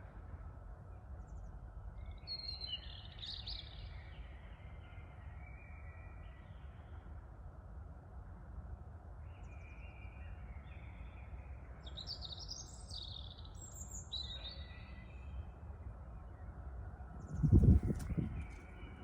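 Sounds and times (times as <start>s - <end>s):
songbird chirping and trilling: 9.3s - 15.6s
low rumble of wind: 14.9s - 19.0s.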